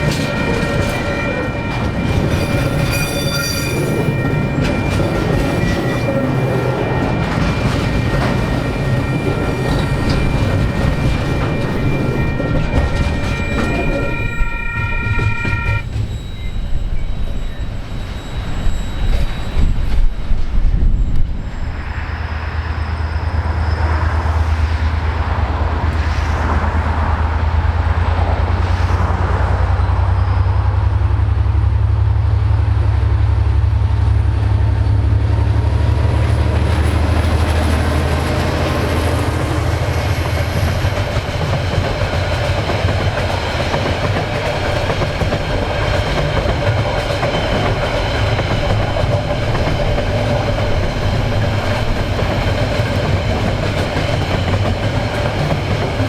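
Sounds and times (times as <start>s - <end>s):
train horn: 0.0s - 16.2s
diesel locomotive engine drone: 0.0s - 56.0s
rolling train wheels and wagons: 0.0s - 56.0s.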